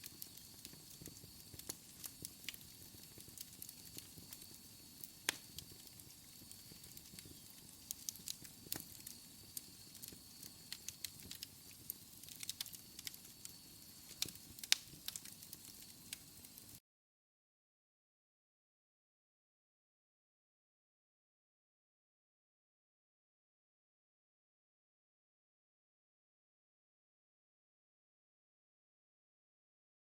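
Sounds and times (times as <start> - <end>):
wood fire crackling: 0.0 - 16.8.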